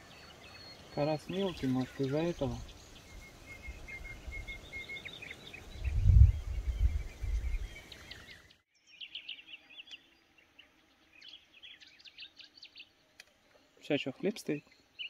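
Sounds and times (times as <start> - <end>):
small birds chirping: 0.0 - 15.0
low rumble on microphone: 5.7 - 7.8.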